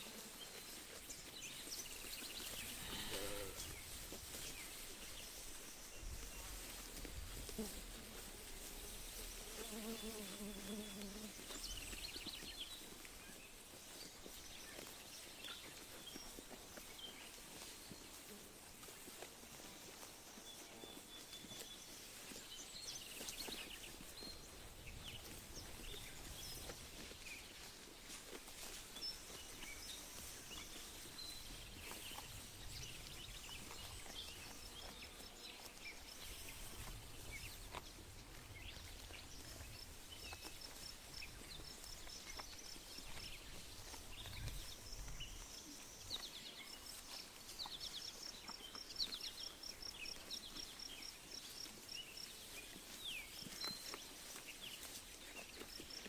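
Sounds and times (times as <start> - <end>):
faint ticks and rustles: 0.0 - 56.0
songbirds chirping: 0.0 - 56.0.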